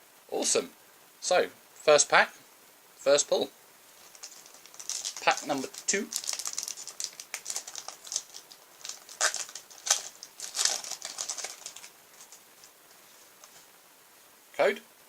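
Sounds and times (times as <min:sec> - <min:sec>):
foil wrapper crinkling: 0:04.0 - 0:13.7.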